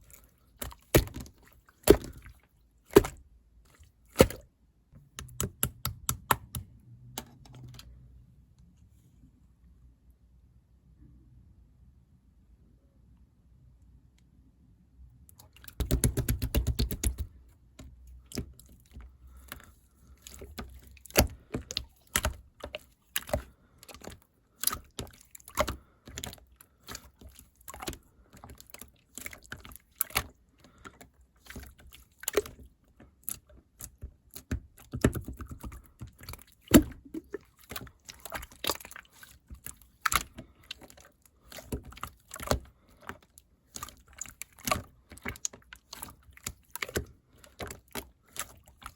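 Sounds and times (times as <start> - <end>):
sharp clicks and taps: 5.0 - 7.9.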